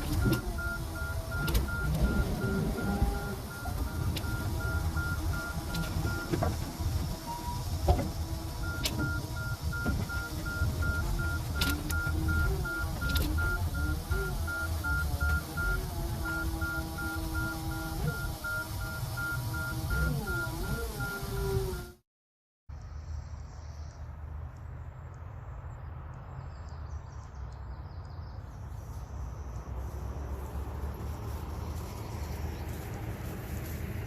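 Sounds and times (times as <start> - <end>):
rapid electronic beeping: 0.0 - 6.4, 8.5 - 21.9
low engine rumble: 0.0 - 22.0, 22.7 - 34.0
sharp clicks: 10.8 - 13.6.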